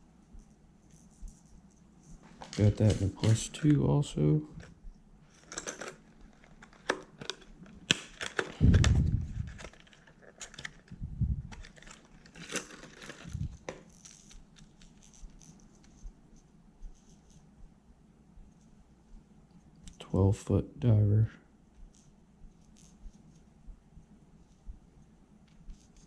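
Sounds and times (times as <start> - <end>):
plastic packaging crinkling: 5.3 - 15.5.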